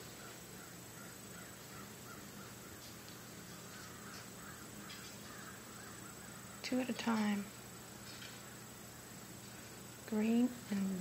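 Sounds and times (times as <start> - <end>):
faint bird calls: 0.0 - 7.4
low background hum: 0.0 - 11.0.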